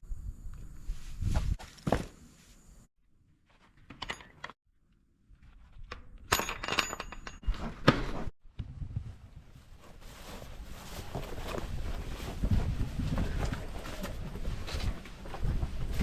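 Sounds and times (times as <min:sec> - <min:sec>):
short clinks and knocks: 0:06.3 - 0:07.5.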